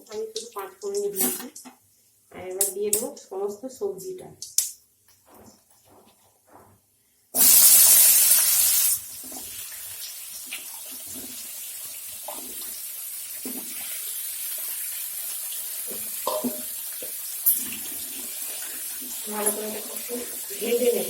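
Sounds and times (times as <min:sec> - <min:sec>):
vegetables sizzling in hot oil: 0:07.4 - 0:21.0.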